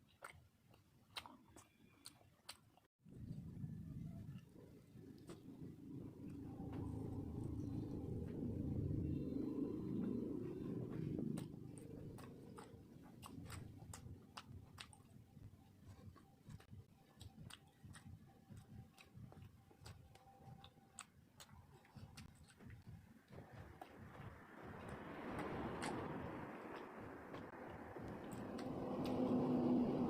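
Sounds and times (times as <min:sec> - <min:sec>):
person chewing food: 0:00.0 - 0:02.9, 0:04.1 - 0:30.0
wet mouth smacks and clicks: 0:24.8 - 0:27.4.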